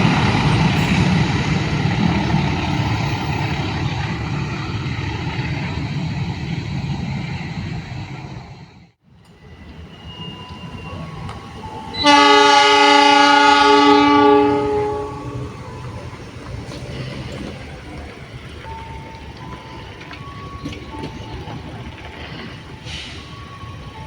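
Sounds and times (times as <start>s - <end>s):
passing train rumble: 0.0s - 24.0s
locomotive air horn: 11.8s - 15.7s.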